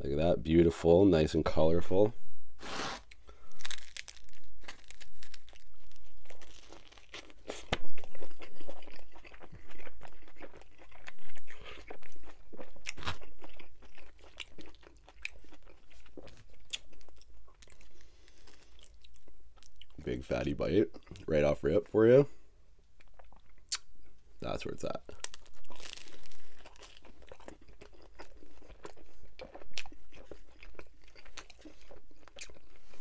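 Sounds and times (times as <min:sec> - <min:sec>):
crust crunching: 0:02.6 - 0:18.8, 0:24.4 - 0:33.0
biting and chewing pizza: 0:02.8 - 0:20.0, 0:25.0 - 0:33.0.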